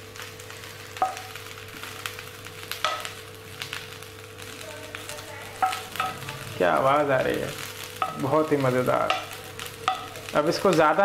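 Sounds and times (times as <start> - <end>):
cauliflower sizzling in oil: 0.0 - 11.0
spatula knocking on pan: 1.0 - 1.3, 2.8 - 3.2, 5.6 - 6.2, 8.0 - 8.3, 9.0 - 10.2.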